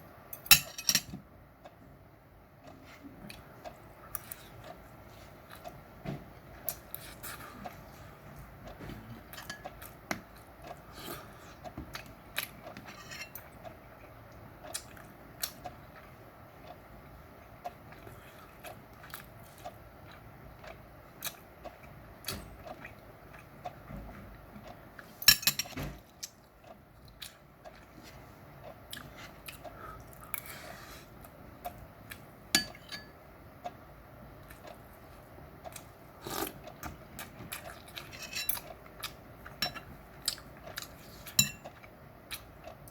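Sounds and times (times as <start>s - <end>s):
utensils clinking against dishes: 0.3s - 1.2s, 25.2s - 25.8s, 38.1s - 38.7s, 39.6s - 39.9s
chewing: 2.6s - 5.9s, 6.5s - 16.9s, 17.5s - 23.9s, 26.0s - 32.3s, 34.4s - 42.9s.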